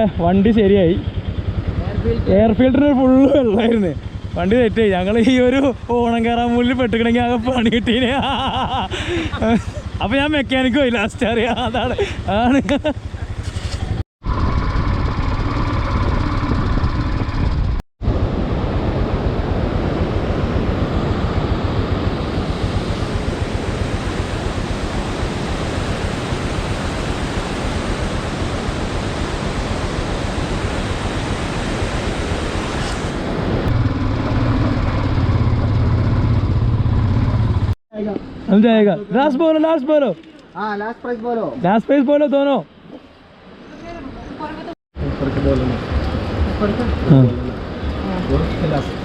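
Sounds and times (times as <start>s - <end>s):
motorcycle engine running: 0.0s - 32.6s, 33.2s - 37.8s, 45.0s - 49.0s
rushing noise: 13.0s - 37.8s, 45.0s - 49.0s.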